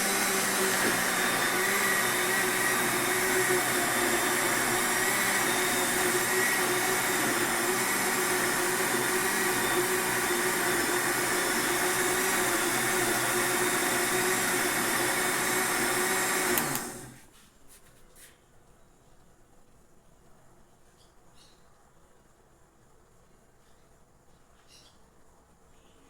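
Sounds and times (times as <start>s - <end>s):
electric blender motor running: 0.0s - 17.2s.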